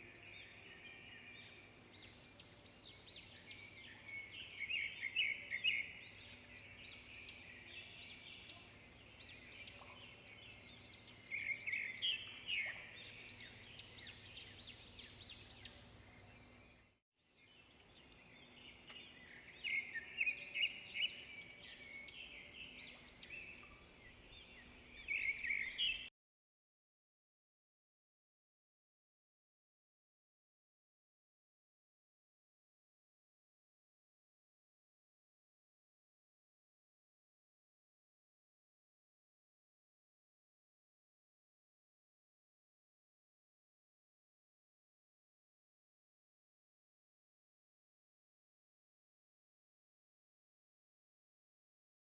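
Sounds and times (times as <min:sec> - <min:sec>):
songbirds chirping and twittering: 0:00.0 - 0:26.1.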